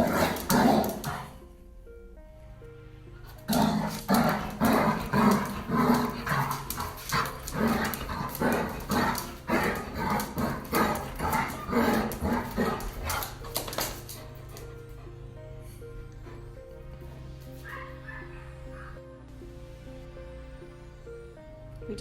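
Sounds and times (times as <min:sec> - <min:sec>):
dog barking: 0:03.5 - 0:14.1, 0:17.6 - 0:19.0.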